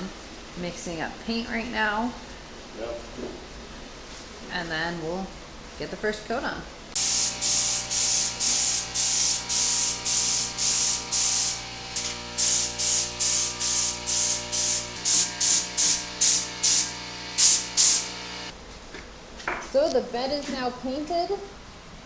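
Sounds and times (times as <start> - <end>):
paint spray gun hissing: 7.0 - 18.5.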